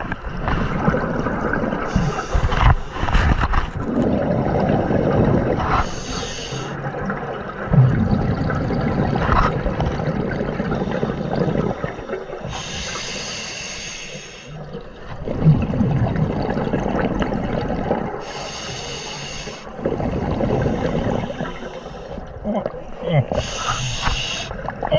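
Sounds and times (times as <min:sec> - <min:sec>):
hissing inhale through regulator: 0:01.9 - 0:03.1, 0:05.7 - 0:06.8, 0:12.4 - 0:14.6, 0:18.2 - 0:19.8, 0:20.6 - 0:22.2, 0:23.3 - 0:24.6
bubbling exhalations underwater: 0:03.7 - 0:12.8, 0:15.1 - 0:18.3, 0:19.7 - 0:24.9.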